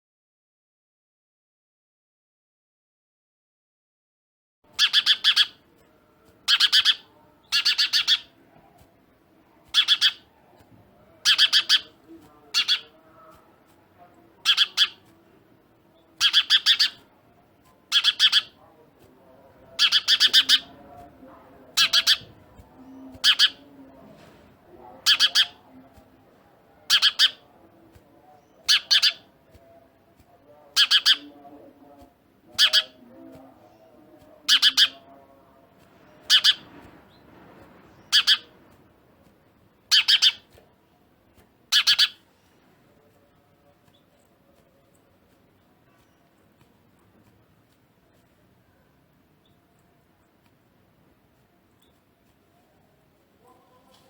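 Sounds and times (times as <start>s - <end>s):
bird harsh squawking calls: 4.8s - 5.6s, 6.5s - 8.4s, 9.7s - 10.3s, 11.2s - 12.9s, 14.4s - 15.1s, 16.0s - 17.0s, 17.9s - 18.6s, 19.8s - 20.8s, 21.8s - 23.6s, 25.0s - 25.6s, 26.9s - 27.4s, 28.6s - 29.3s, 30.8s - 31.3s, 32.6s - 33.0s, 34.5s - 35.0s, 36.2s - 36.7s, 37.9s - 38.5s, 39.9s - 40.5s, 41.7s - 42.2s.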